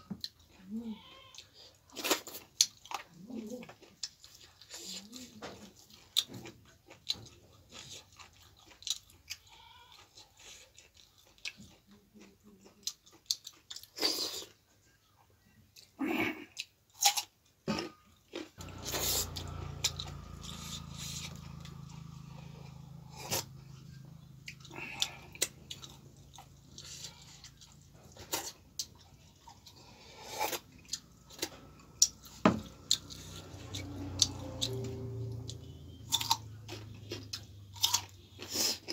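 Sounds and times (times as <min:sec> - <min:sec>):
chewing with wet mouth smacks: 0:01.8 - 0:09.4, 0:10.0 - 0:14.6, 0:18.3 - 0:34.7
steady low hum: 0:18.6 - 0:38.4.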